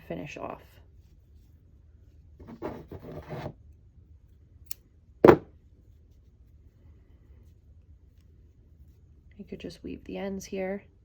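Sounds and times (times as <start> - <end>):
sharp knock: 5.2 - 5.5.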